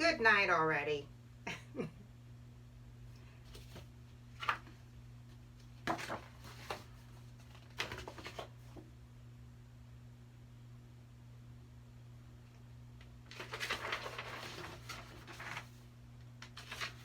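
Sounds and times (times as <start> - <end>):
low electrical hum: 0.0 - 17.0
book pages rustling: 3.4 - 8.8, 13.3 - 17.0.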